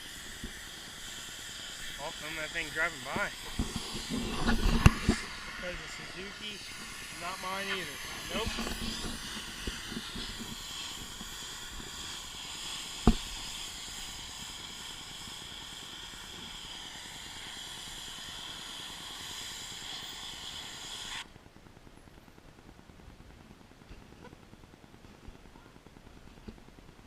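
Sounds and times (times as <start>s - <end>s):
pressure washer spraying: 0.0s - 21.2s.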